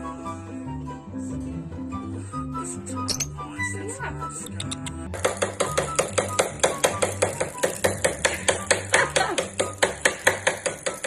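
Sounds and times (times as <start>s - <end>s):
rapid tapping on hard surface: 5.1s - 11.0s.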